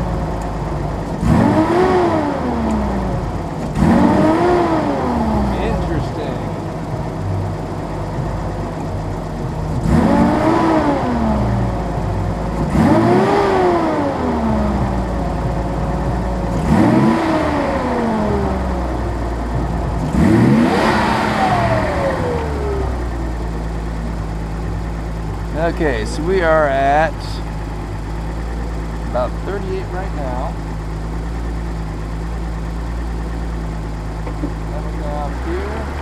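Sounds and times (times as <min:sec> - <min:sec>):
car engine idling and revving: 0:00.0 - 0:36.0.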